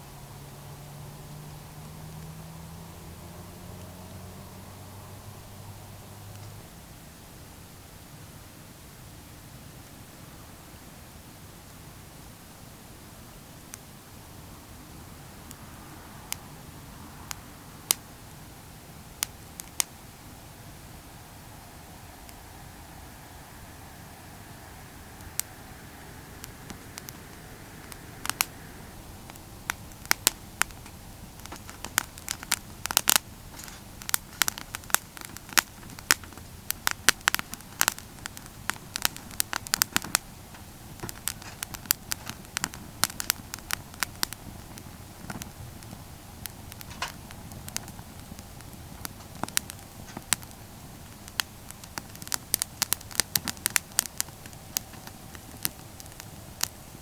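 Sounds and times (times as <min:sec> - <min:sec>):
low steady fire hiss: 0:00.0 - 0:57.0
campfire crackling and popping: 0:00.1 - 0:57.0.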